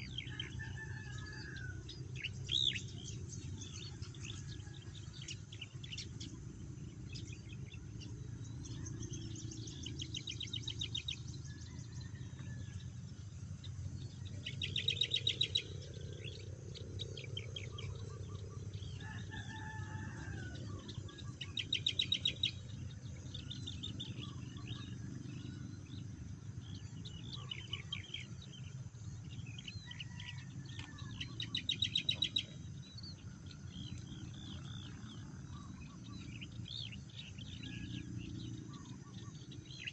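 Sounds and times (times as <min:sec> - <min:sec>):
distant rooster crowing: 0:00.0 - 0:02.7, 0:11.4 - 0:13.1, 0:17.3 - 0:22.2, 0:29.4 - 0:39.9
low background rumble: 0:00.0 - 0:39.9.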